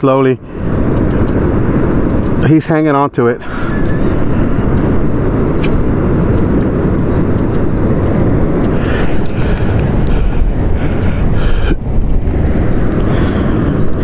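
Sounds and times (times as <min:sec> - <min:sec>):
wind buffeting microphone: 0:00.0 - 0:14.0
sharp click: 0:05.6 - 0:06.5.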